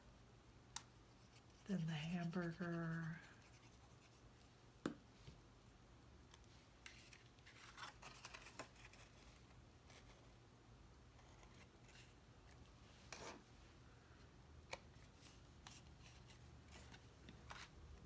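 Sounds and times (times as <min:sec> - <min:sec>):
cardstock rustling and scraping: 0:06.9 - 0:10.3, 0:15.0 - 0:17.8.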